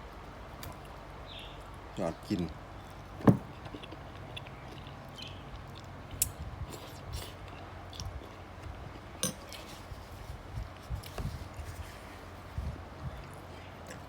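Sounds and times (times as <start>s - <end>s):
soft chewing: 2.4s - 14.0s
cutlery clinking on bowl: 9.2s - 9.8s.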